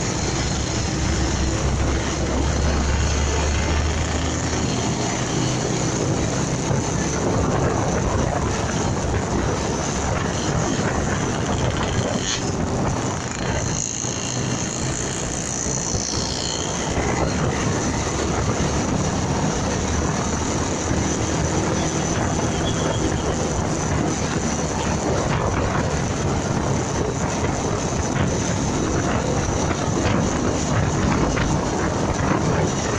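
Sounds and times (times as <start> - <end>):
motorcycle engine: 0.0 - 32.9
road and wind noise: 0.0 - 32.9.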